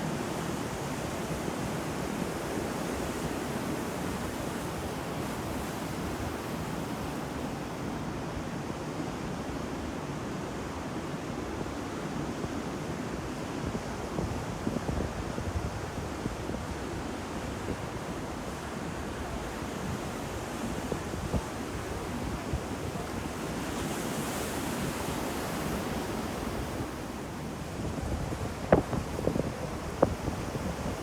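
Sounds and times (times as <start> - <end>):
wind buffeting microphone: 19.2 - 31.0.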